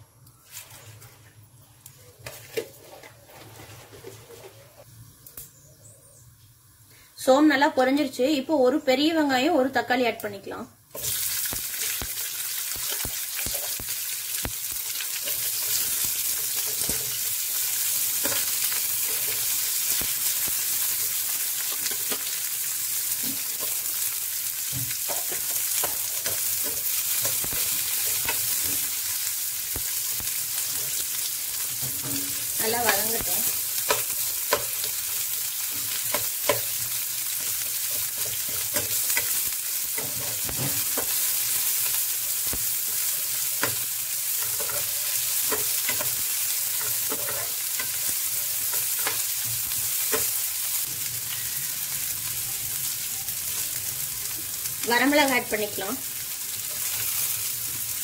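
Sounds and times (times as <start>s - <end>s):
onions sizzling in hot oil: 6.7s - 58.0s
spatula scraping and knocking pan: 33.8s - 34.9s, 44.4s - 48.0s.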